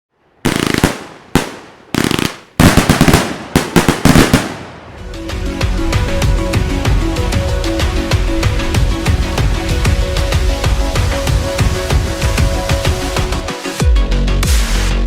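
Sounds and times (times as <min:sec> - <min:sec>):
fireworks bangs and crackle: 0:00.4 - 0:05.1.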